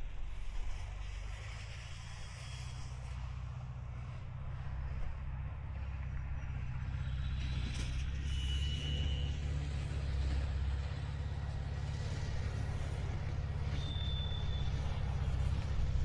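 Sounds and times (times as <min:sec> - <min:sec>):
van engine idling: 0:08.0 - 0:16.0.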